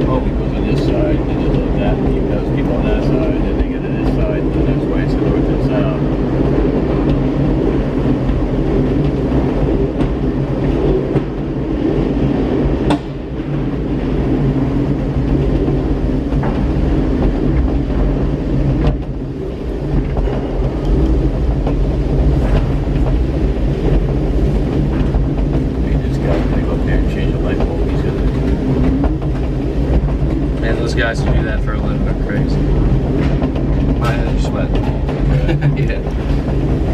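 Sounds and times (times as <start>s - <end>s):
tram mechanical rumble and hum: 0.0s - 36.9s
sharp clicks and clunks: 23.8s - 36.9s.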